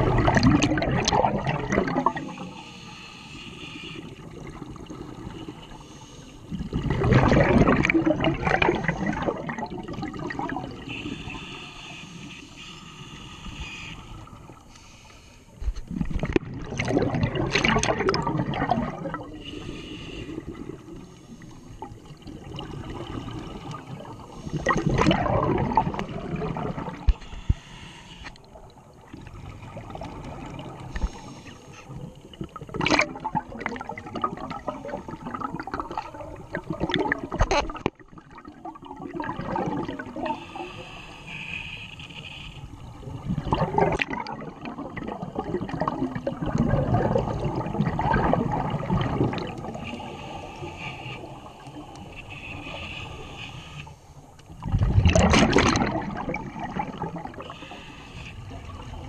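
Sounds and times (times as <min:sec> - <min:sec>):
underwater bubbles gurgling: 0:00.0 - 0:59.0.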